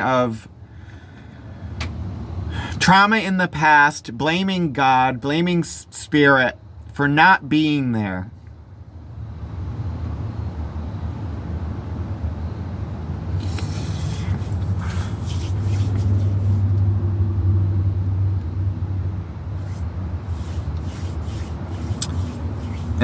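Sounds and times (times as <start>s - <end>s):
motor vehicle rumble: 0.0s - 2.9s, 8.3s - 23.0s
brief rustling: 13.4s - 16.7s, 19.6s - 23.0s.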